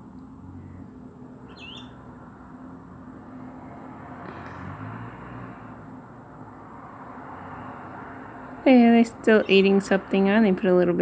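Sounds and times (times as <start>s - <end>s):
low outdoor background rumble: 0.0s - 4.6s.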